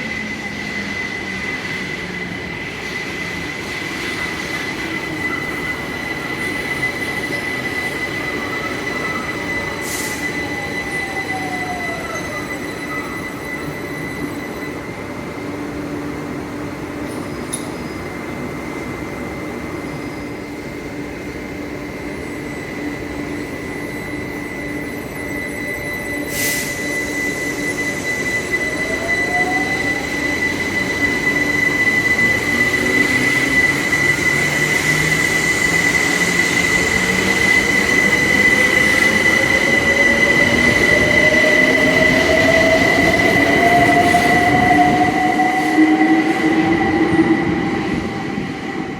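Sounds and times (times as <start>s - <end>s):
steady high-pitched tone: 0.0s - 48.9s
train traction motor whine: 0.0s - 48.9s.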